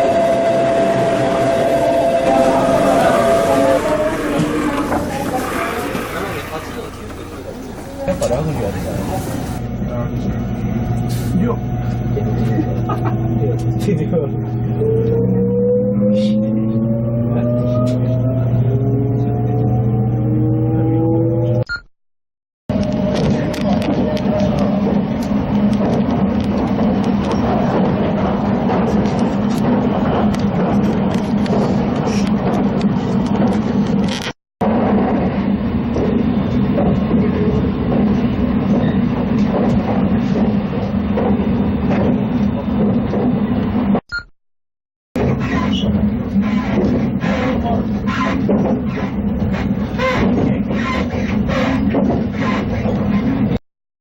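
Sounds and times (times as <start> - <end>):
train wheels rumbling on rails: 0.0 - 14.6, 22.8 - 43.9, 45.2 - 53.6
electric train motor whine: 0.0 - 15.7.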